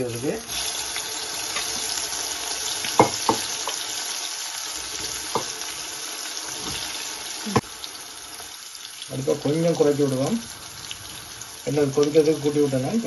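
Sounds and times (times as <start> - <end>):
food deep-frying sizzle: 0.0 - 13.0.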